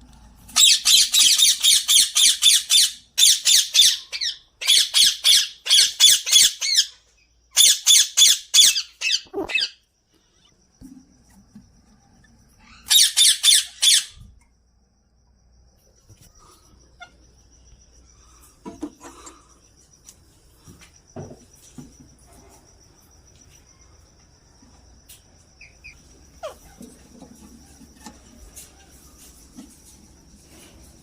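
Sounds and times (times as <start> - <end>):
parakeet squawks: 0.6 - 9.8, 12.6 - 14.2.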